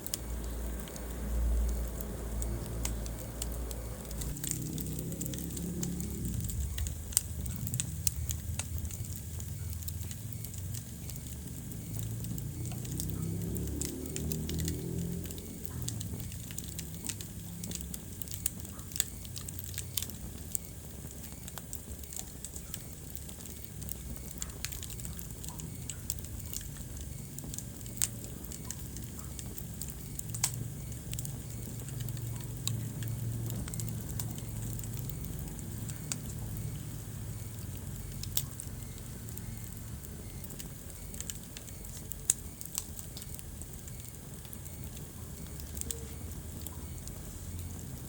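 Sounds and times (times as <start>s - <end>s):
low rumble of flames: 0.0s - 48.0s
wood fire crackling and popping: 0.0s - 48.0s.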